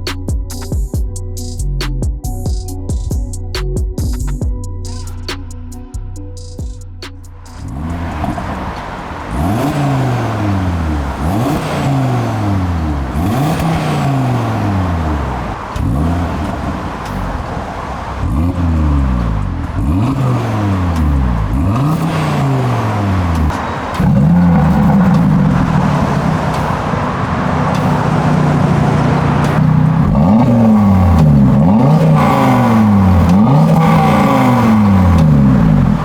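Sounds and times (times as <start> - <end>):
car engine revving: 7.2 - 36.0.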